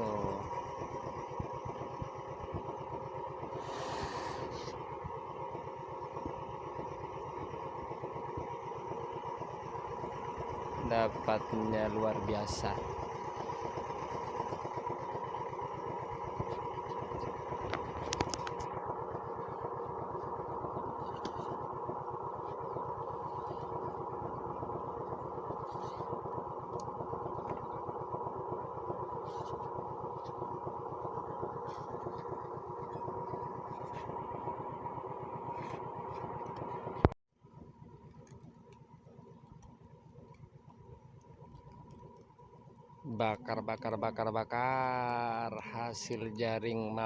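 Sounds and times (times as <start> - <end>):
small engine running: 0.0 - 37.2.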